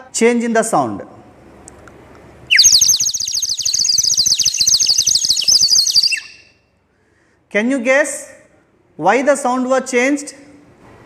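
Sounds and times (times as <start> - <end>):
water bird whistle warbling: 2.5 - 6.6.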